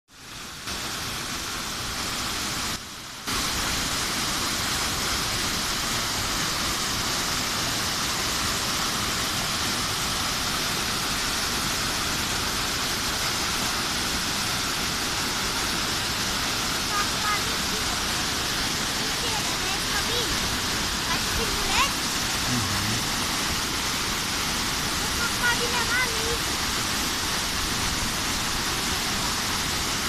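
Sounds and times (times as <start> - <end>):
waterfall roar: 0.2 - 30.0.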